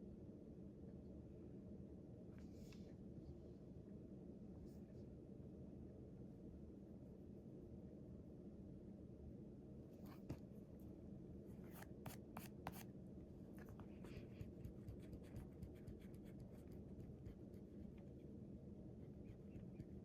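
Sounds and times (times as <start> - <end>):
low steady hum: 0.0 - 20.0
pen scratching on paper: 11.7 - 12.8, 13.6 - 18.3, 19.0 - 20.0.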